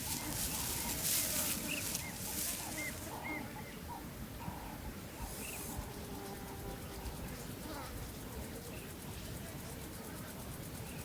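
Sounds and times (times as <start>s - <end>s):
steady hiss: 0.0s - 3.2s
small birds chirping: 0.0s - 4.0s.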